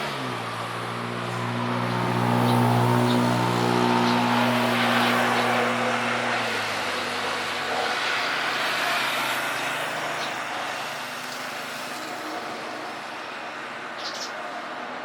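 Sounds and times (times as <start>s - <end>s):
jet engine rushing: 0.9s - 10.7s.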